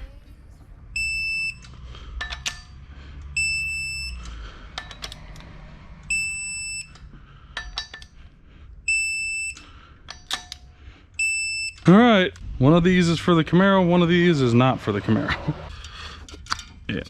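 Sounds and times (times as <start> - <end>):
electronic alarm beeping: 0.9 - 1.8, 3.3 - 4.3, 6.0 - 7.1, 8.8 - 9.7, 11.2 - 12.1
metal tools clinking: 1.6 - 2.8, 6.8 - 8.2, 15.8 - 17.0.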